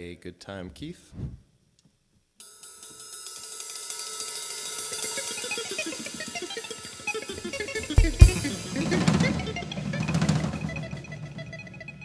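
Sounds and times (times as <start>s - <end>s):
cymbal taps: 8.0s - 8.9s
short melodic notes: 8.0s - 10.9s.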